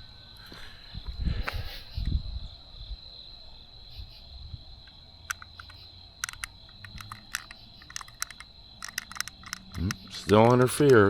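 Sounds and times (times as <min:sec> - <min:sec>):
crickets trilling: 0:00.0 - 0:11.0
sharp irregular clicks: 0:05.3 - 0:11.0.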